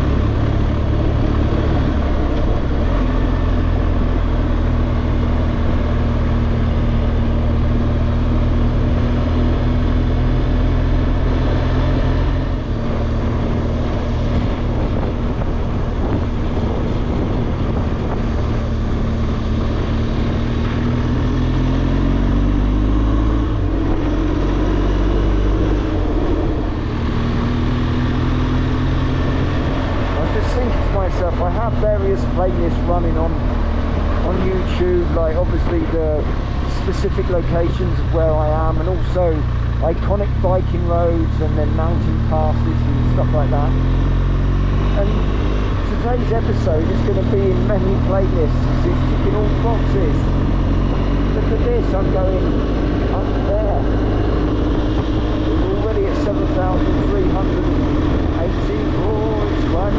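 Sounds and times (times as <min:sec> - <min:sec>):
motorcycle engine running: 0:00.0 - 0:59.9
wind rush: 0:12.7 - 0:21.7.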